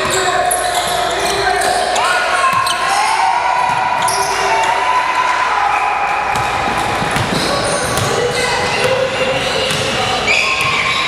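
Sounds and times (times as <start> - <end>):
basketball bouncing on court: 6.3 - 11.0.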